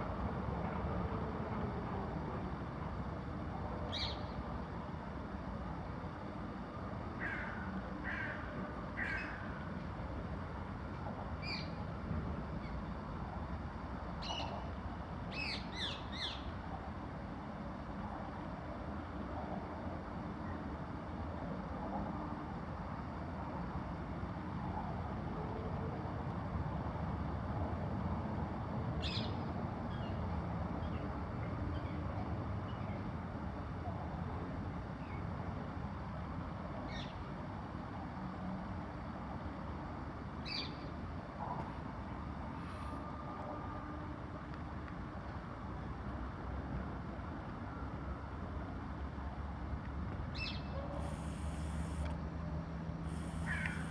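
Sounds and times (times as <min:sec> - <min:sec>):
birds calling: 0:53.1 - 0:53.9.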